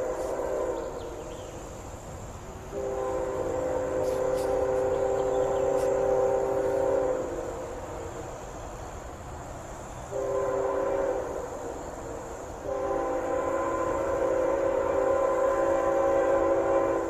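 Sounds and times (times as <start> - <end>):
locomotive air horn: 0.0 - 1.2, 2.7 - 7.8, 10.1 - 11.8, 12.6 - 17.0.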